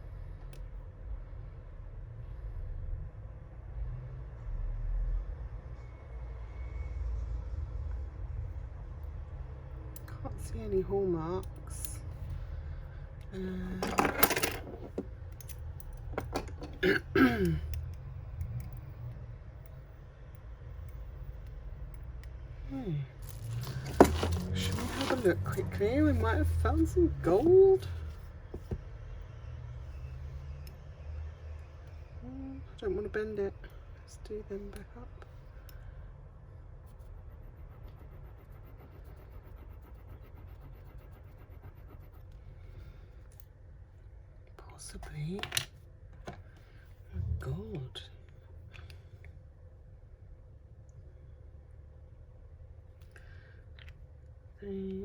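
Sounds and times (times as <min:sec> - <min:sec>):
jewellery clinking: 0:13.8 - 0:17.0
person clearing throat: 0:16.8 - 0:17.7
steady low hum: 0:31.6 - 0:55.0.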